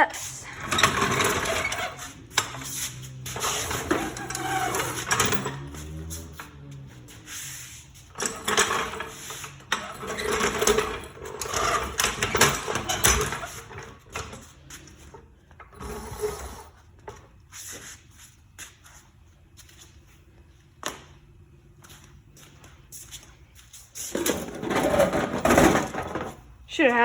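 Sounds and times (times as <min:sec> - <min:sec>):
floor jack rattling across floor: 0:00.5 - 0:07.1, 0:08.1 - 0:17.2, 0:24.1 - 0:26.5.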